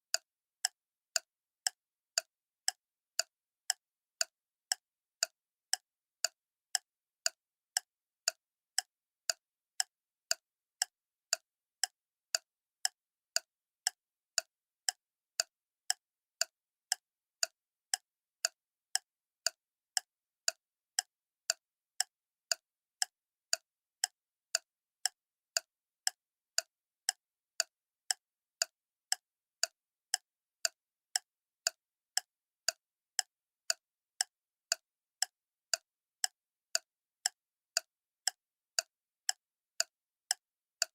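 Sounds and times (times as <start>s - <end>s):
clock ticking: 0.1s - 40.9s.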